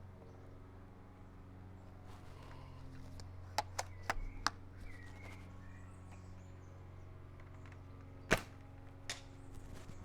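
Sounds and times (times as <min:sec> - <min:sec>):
sharp clicks of rifle bolt: 0:03.2 - 0:04.6.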